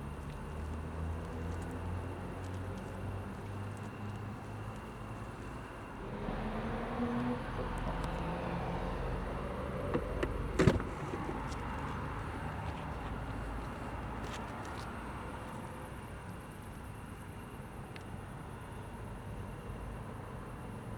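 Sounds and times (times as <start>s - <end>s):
diesel car engine running: 0.0s - 15.9s
road noise: 0.0s - 20.9s
sharp thump: 10.0s - 11.4s.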